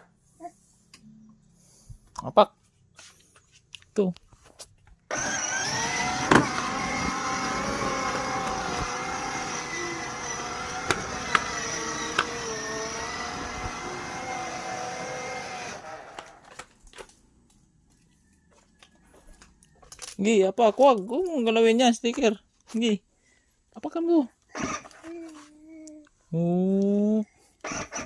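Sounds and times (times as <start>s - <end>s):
toy motorcycle humming: 5.1s - 16.6s, 24.5s - 25.4s, 27.6s - 28.0s.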